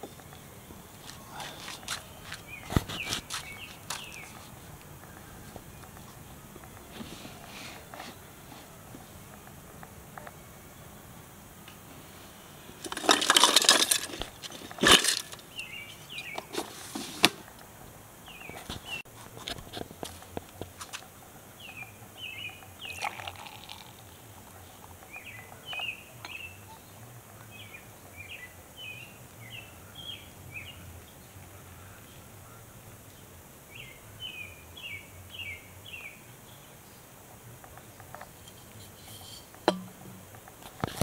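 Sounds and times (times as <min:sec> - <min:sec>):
songbird chirping: 0:00.0 - 0:16.8, 0:17.4 - 0:19.1, 0:20.2 - 0:41.0
beer pouring into a glass: 0:22.9 - 0:24.0.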